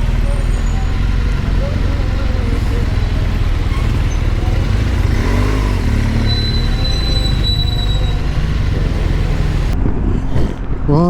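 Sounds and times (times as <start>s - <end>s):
motorcycle engine rumbling: 0.0s - 11.0s
wind noise: 7.4s - 11.0s.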